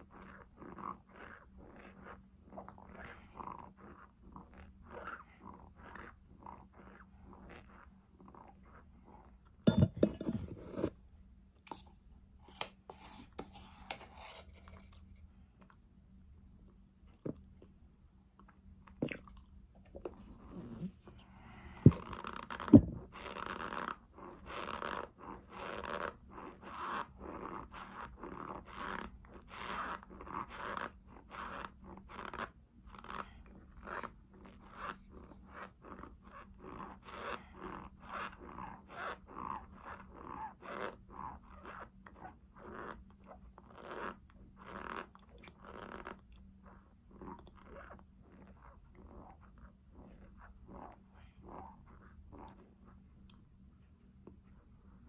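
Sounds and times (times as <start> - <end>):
crunchy food chewing: 18.4 - 20.0.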